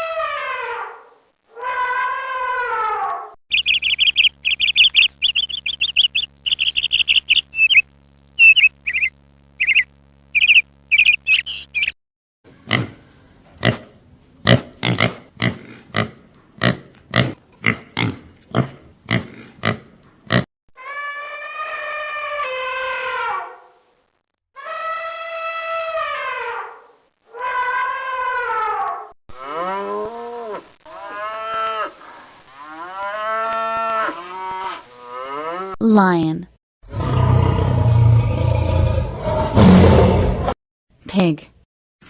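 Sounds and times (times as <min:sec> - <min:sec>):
long low animal calls: 0:03.5 - 0:07.8
quick high animal chirps: 0:03.5 - 0:12.0
steady low hum: 0:03.5 - 0:12.0.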